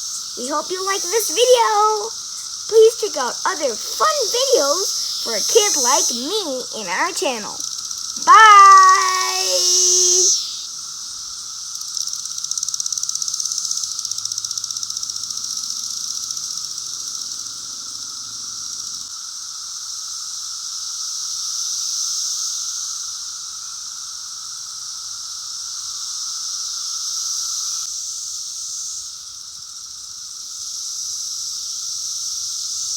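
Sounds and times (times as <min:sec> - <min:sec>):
cicadas droning chorus: 0:00.0 - 0:32.9.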